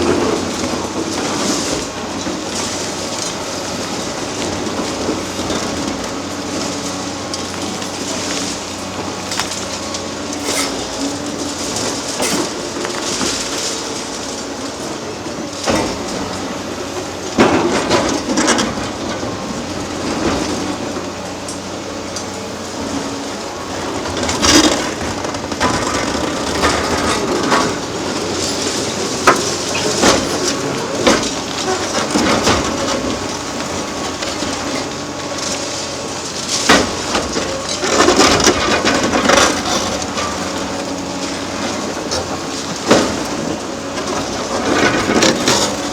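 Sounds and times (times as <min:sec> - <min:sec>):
concrete breaking and clattering: 0:00.0 - 0:16.4, 0:23.6 - 0:45.9
excavator engine running: 0:00.0 - 0:45.9
steel scraping: 0:08.1 - 0:14.3.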